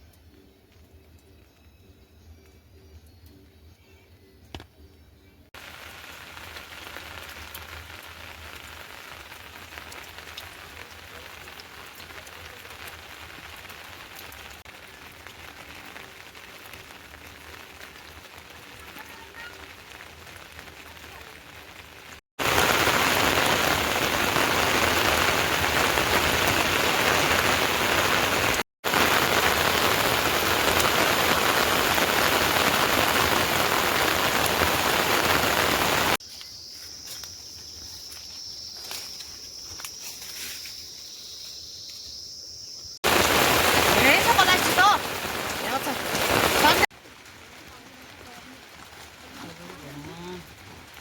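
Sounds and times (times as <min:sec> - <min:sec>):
water dripping: 0:05.6 - 0:27.4
heavy rain falling: 0:05.6 - 0:36.2, 0:43.0 - 0:51.0.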